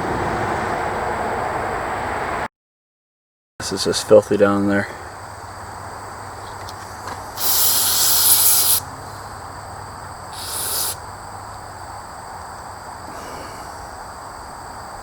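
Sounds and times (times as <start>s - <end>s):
aerosol spray can hissing: 7.4s - 8.8s, 10.3s - 11.0s.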